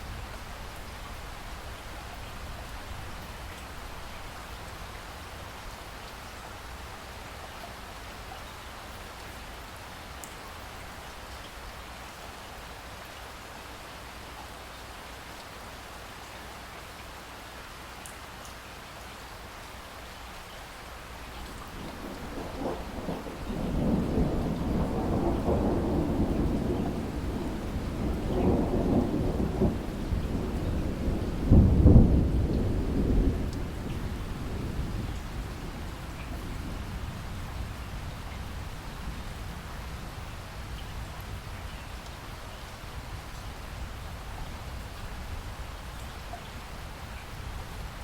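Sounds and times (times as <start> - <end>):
steady rain falling: 0.0 - 48.0
rolling thunder: 21.7 - 41.5.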